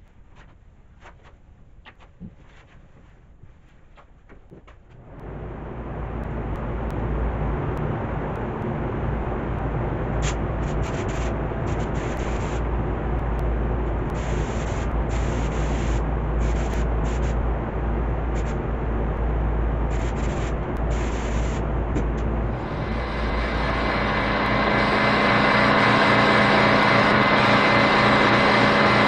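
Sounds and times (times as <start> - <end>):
air compressor humming: 5.2 - 13.2, 13.8 - 17.6, 18.2 - 18.8, 19.8 - 29.0
spray gun hissing: 10.2 - 12.6, 14.2 - 17.4, 19.9 - 21.6, 22.6 - 29.0.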